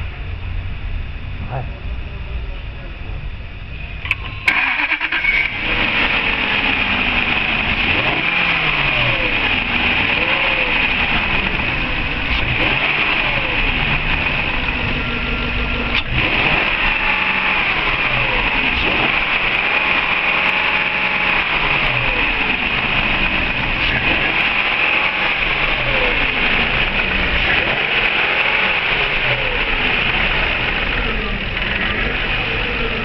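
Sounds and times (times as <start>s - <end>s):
engine revving up and down: 1.3s - 2.0s, 4.0s - 33.0s.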